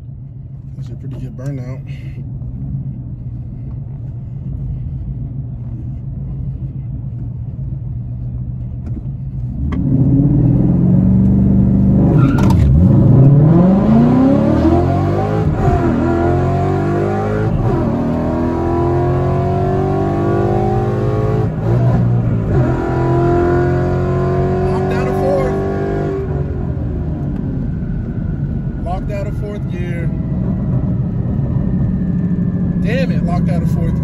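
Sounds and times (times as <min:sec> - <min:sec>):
car engine revving hard: 0:09.6 - 0:26.7.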